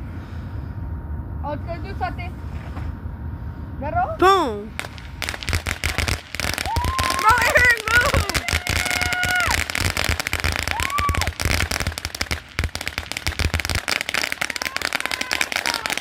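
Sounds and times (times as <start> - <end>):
firecrackers popping: 4.7 - 16.0
voice-like cry: 6.7 - 9.6.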